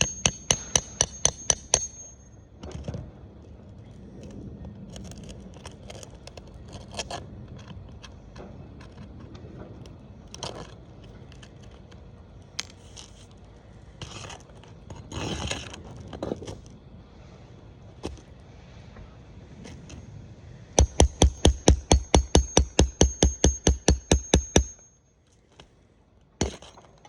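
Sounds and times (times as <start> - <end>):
scraping on roof shingles: 4.1 - 11.9, 12.7 - 16.7.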